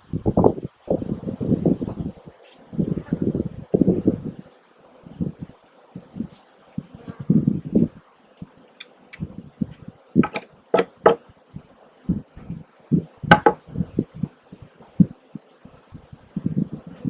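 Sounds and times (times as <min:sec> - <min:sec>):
wooden beehive parts knocking: 0:09.2 - 0:11.3, 0:13.3 - 0:14.0.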